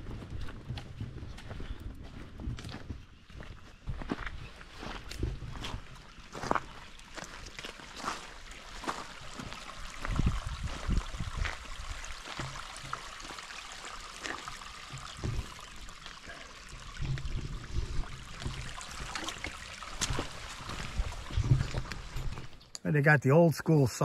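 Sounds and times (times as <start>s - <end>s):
footsteps on rocky trail: 0.0s - 11.7s, 19.9s - 22.7s
stream trickling over rocks: 5.2s - 23.0s.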